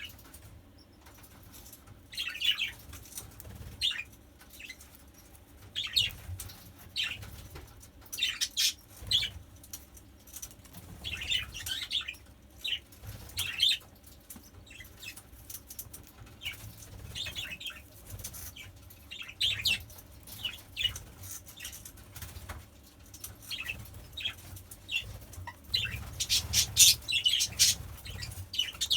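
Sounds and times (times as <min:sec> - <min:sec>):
budgerigars chirping: 0:03.8 - 0:04.8, 0:05.7 - 0:06.3, 0:08.2 - 0:09.3, 0:11.0 - 0:13.8, 0:16.4 - 0:21.8, 0:23.5 - 0:28.9.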